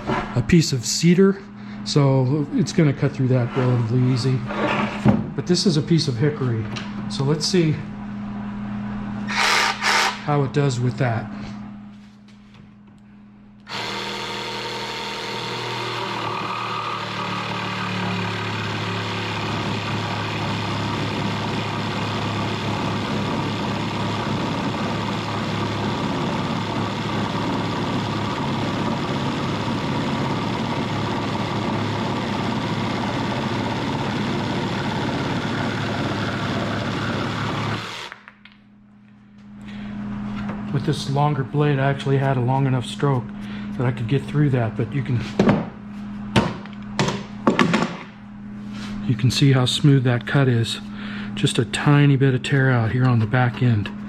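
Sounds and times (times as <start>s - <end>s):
jigsaw sawing through wood: 9.3s - 10.2s, 13.7s - 38.2s.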